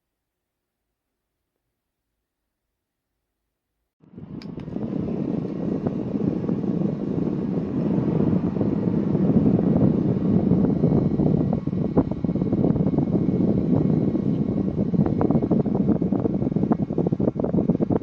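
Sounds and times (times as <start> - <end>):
desk fan whirring: 4.0 - 18.0
fan switch click: 4.4 - 4.8.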